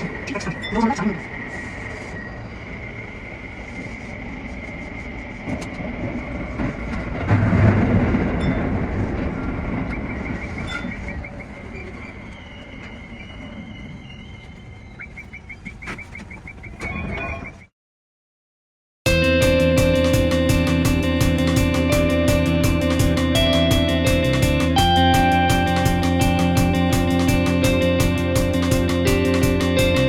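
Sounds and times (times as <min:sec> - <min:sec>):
steady high tone: 0:00.0 - 0:06.5, 0:19.1 - 0:30.0
electric train rumbling on rails: 0:00.0 - 0:16.8, 0:19.1 - 0:30.0.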